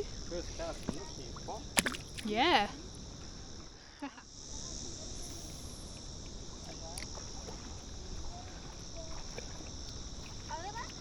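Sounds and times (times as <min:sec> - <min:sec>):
high-pitched insect drone: 0:00.0 - 0:11.0
water wash: 0:01.7 - 0:02.6.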